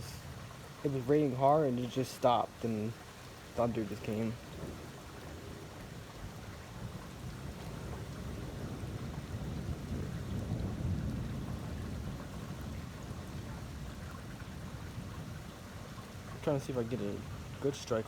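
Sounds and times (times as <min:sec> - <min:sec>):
rain hissing: 0:00.0 - 0:18.0
thunder rumbling: 0:03.5 - 0:17.8.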